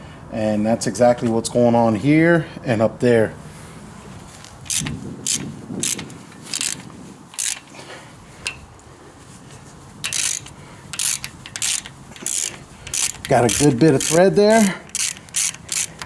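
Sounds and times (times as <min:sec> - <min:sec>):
metal clicks and scrapes: 0:04.6 - 0:08.7, 0:09.5 - 0:16.0.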